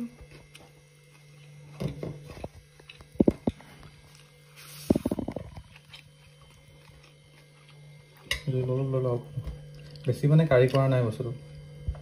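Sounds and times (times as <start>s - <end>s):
low electrical hum: 0.0s - 12.0s
wet chewing and mouth smacks: 2.3s - 4.3s, 4.9s - 8.2s.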